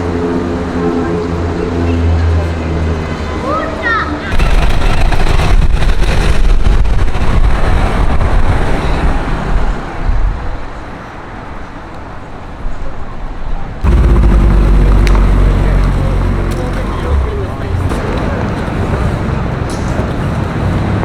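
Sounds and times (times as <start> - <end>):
street traffic: 0.0 - 21.0
car engine running low: 13.8 - 21.0
car passing: 13.8 - 21.0.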